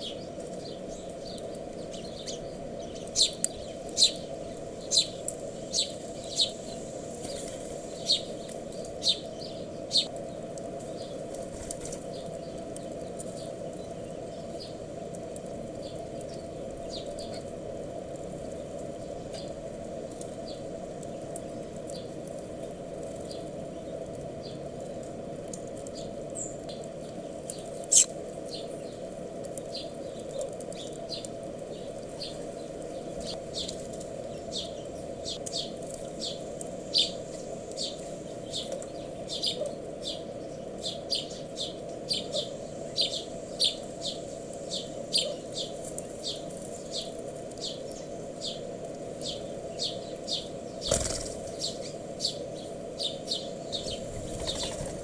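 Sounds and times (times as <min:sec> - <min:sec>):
small birds chirping: 0:00.0 - 0:17.6, 0:18.2 - 0:55.0
steady background hum: 0:00.0 - 0:55.0.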